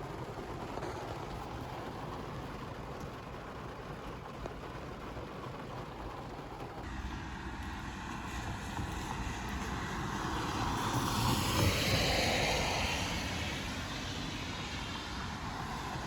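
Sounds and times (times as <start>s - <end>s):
vehicle passing: 7.0s - 15.9s.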